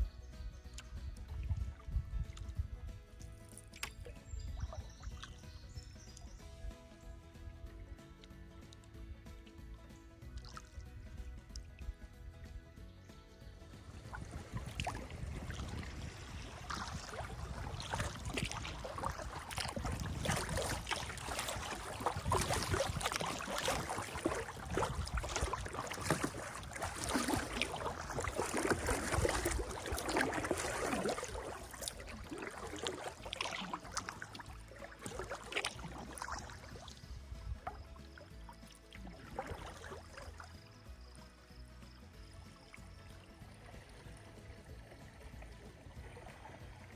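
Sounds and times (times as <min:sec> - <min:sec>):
water dripping and gurgling: 0:00.0 - 0:12.7, 0:13.3 - 0:46.9
paddle splashing in water: 0:03.2 - 0:06.8, 0:10.3 - 0:10.9, 0:13.6 - 0:46.9.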